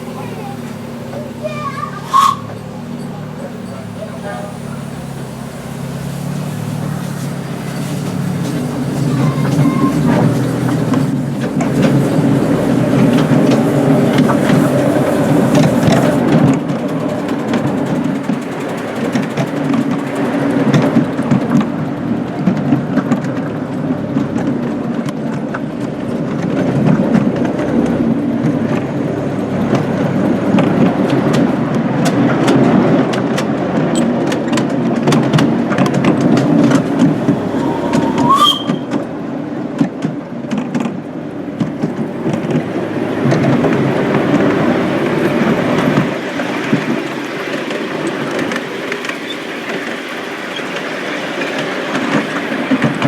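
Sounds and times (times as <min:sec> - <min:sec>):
miniature train rumbling: 0:00.0 - 0:53.0
wheel clicks over rail joints: 0:00.0 - 0:53.0
high squeak: 0:01.2 - 0:03.9, 0:09.0 - 0:10.3, 0:36.9 - 0:39.0.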